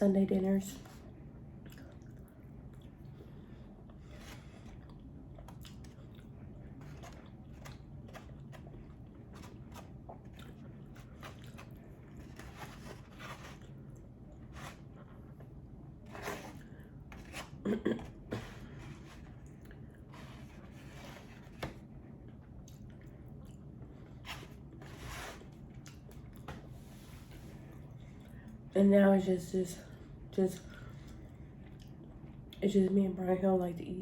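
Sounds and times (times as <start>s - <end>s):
close chewing of food: 1.5s - 15.6s.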